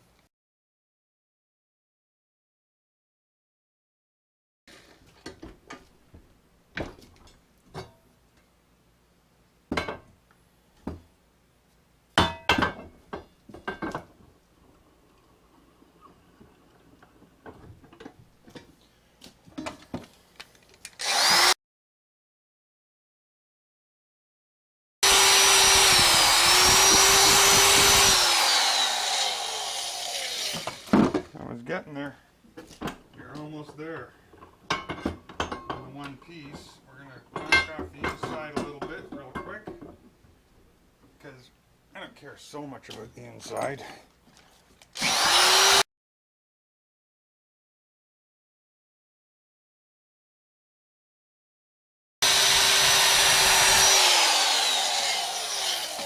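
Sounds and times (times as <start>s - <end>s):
power tool whining: 21.0s - 21.6s, 25.0s - 30.9s, 45.0s - 45.8s, 52.2s - 56.0s.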